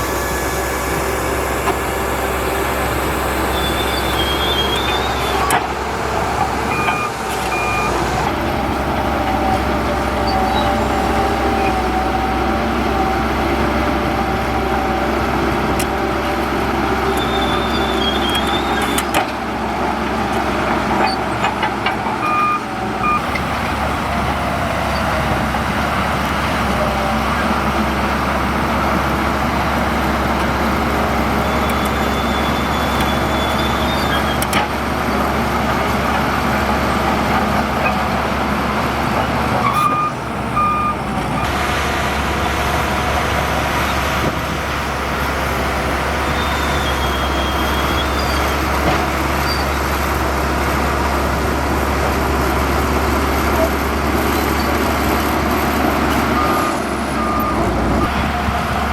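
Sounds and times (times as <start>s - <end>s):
heavy diesel machinery running: 0.0s - 58.9s
short electronic beeps: 6.7s - 8.0s.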